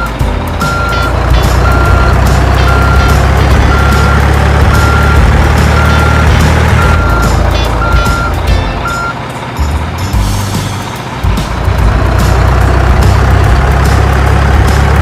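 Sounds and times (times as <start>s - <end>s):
reversing alarm beeping: 0.0s - 9.2s
low engine drone: 0.0s - 15.0s.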